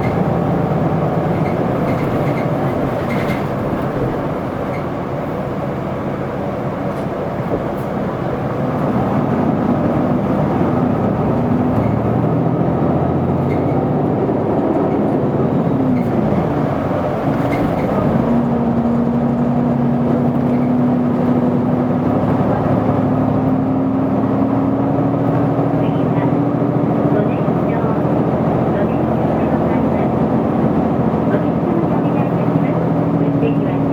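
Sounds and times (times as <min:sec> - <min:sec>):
bus diesel engine under load: 0:00.0 - 0:33.9.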